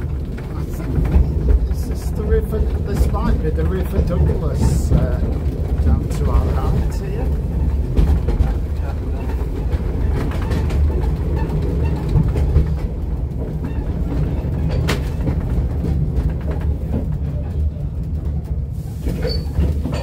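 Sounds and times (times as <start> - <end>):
wheels rumbling on rail: 0.0 - 20.0.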